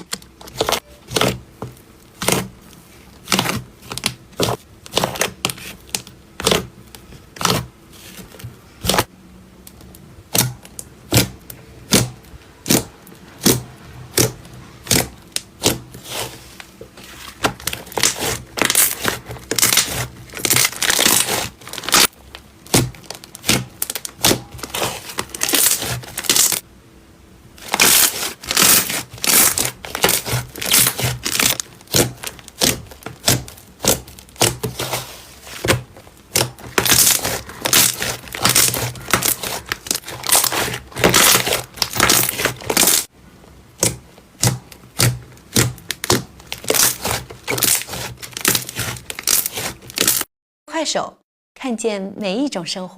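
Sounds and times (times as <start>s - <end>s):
slime crackling and popping: 3.2s - 6.7s, 17.5s - 26.6s, 27.6s - 43.1s, 43.8s - 50.3s.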